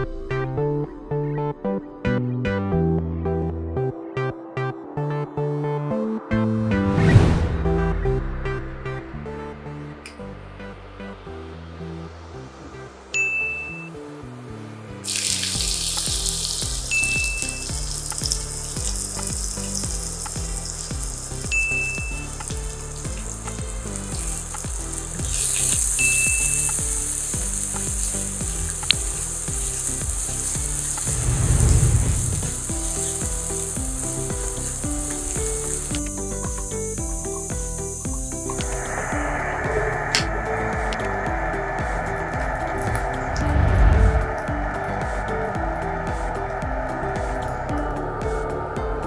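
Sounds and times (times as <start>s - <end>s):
onions sizzling in hot oil: 15.0s - 43.4s.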